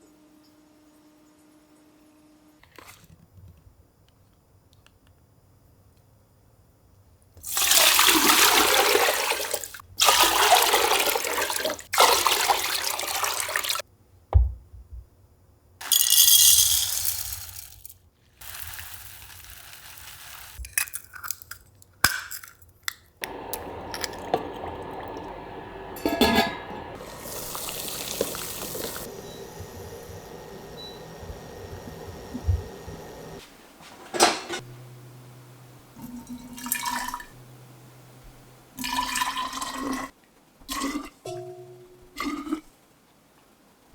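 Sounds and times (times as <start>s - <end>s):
running water bursts: 7.5s - 13.8s, 18.4s - 20.6s, 23.2s - 33.7s.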